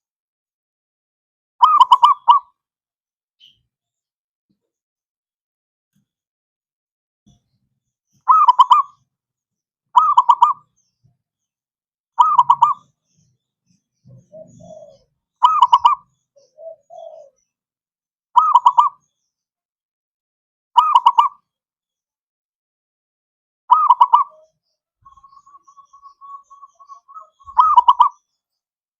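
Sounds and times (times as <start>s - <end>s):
dove cooing: 10.0s - 10.6s, 12.2s - 12.8s, 14.1s - 17.5s, 18.4s - 18.9s, 23.7s - 24.5s, 25.1s - 28.2s.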